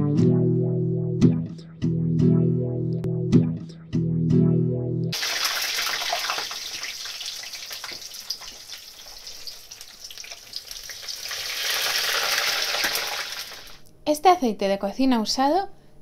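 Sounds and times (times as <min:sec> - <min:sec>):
food deep-frying in hot oil: 0:05.2 - 0:13.8.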